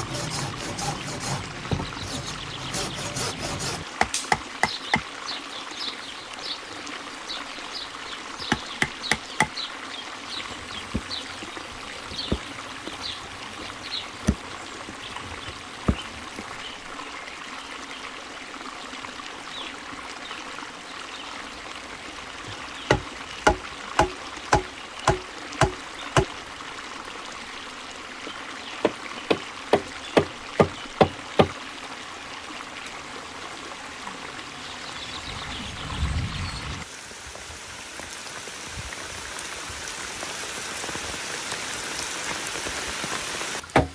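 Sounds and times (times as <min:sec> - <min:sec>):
sharp knocks: 0:00.0 - 0:05.0, 0:22.9 - 0:26.3
water trickling: 0:00.0 - 0:35.2.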